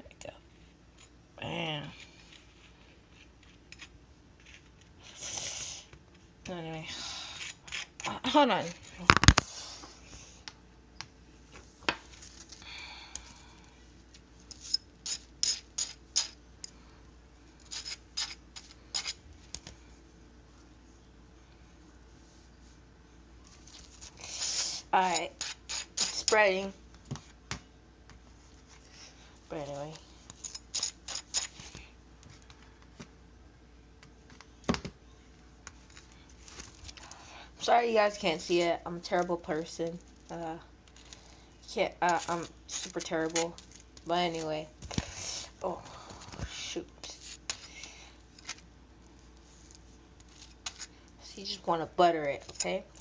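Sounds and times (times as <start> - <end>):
knife scraping butter on toast: 2.0 - 5.0, 7.2 - 8.1, 14.6 - 16.4, 17.6 - 19.2, 24.3 - 26.3, 42.0 - 43.7, 49.7 - 50.9.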